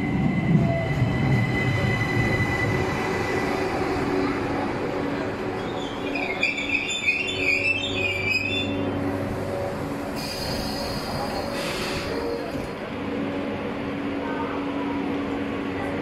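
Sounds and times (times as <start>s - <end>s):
electric hum of train: 0.0s - 16.0s
train wheels squealing on rails: 5.4s - 12.8s.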